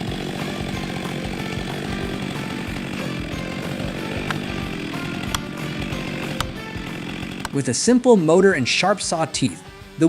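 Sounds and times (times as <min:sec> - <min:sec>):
chainsaw running: 0:00.0 - 0:08.1
sharp clicks: 0:04.2 - 0:04.5, 0:05.2 - 0:05.5, 0:06.2 - 0:06.6.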